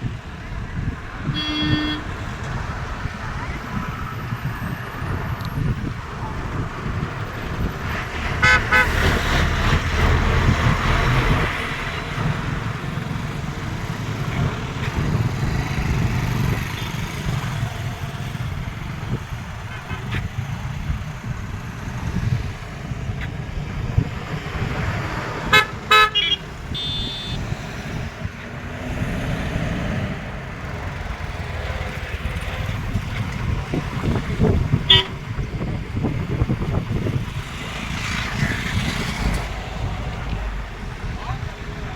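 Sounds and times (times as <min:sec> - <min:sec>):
traffic rumble: 0:00.0 - 0:41.9
vehicle horn toots: 0:01.2 - 0:02.2, 0:08.4 - 0:09.1, 0:25.5 - 0:27.4, 0:34.9 - 0:35.2.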